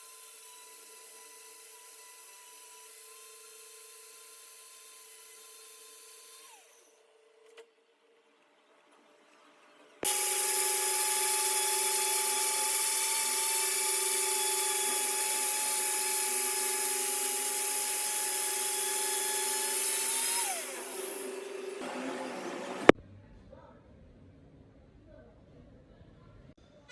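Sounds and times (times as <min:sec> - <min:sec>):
lathe cutting with whine: 0:10.0 - 0:23.0.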